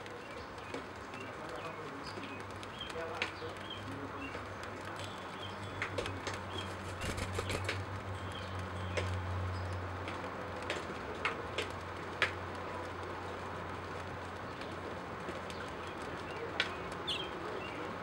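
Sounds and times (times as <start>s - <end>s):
sharp clicks: 5.9s - 7.8s.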